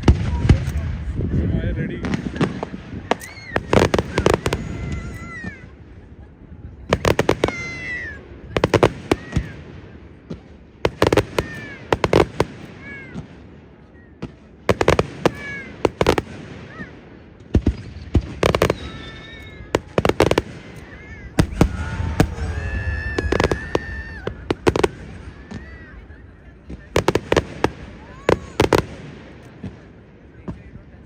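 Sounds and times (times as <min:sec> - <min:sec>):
fireworks bangs: 0:00.0 - 0:30.9
fireworks whistling: 0:02.0 - 0:05.8, 0:06.9 - 0:09.6, 0:17.8 - 0:29.7.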